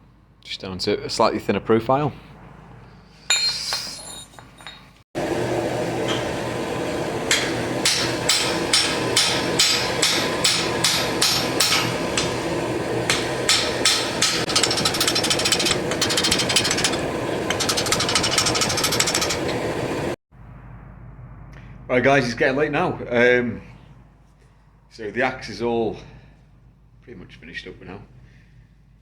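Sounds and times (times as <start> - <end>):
gas forge rushing: 5.2 - 20.2
hammer blows on hot steel: 5.2 - 20.2.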